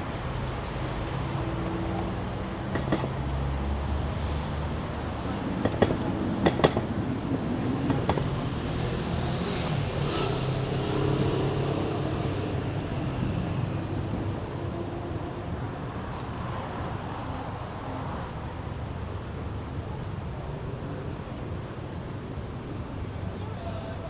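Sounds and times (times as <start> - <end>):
vehicle engine passing: 6.0 - 14.3.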